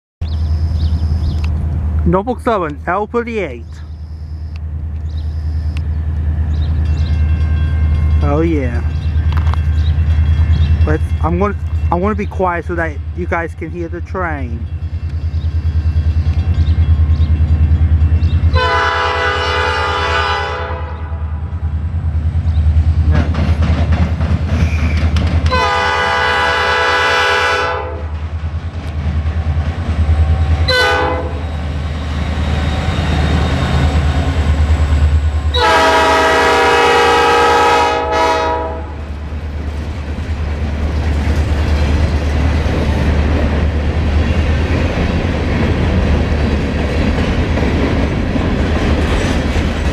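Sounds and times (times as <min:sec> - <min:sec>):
locomotive horn: 0:18.5 - 0:21.4, 0:25.5 - 0:28.2, 0:30.6 - 0:31.5, 0:35.5 - 0:39.1
train wheels clacking on rails: 0:22.4 - 0:26.1, 0:39.0 - 0:49.9
diesel engine rumble: 0:38.8 - 0:49.9.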